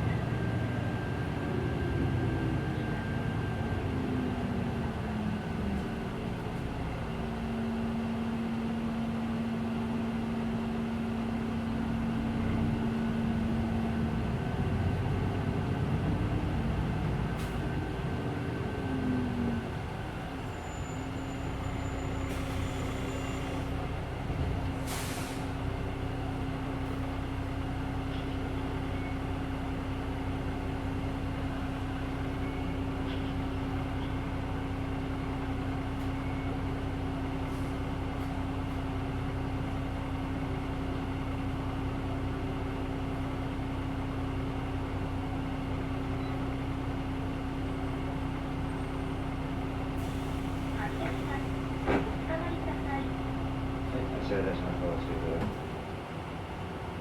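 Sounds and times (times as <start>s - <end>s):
bus diesel engine droning: 0.0s - 57.0s
air brake hiss: 22.0s - 23.7s, 24.8s - 25.6s, 50.0s - 51.3s.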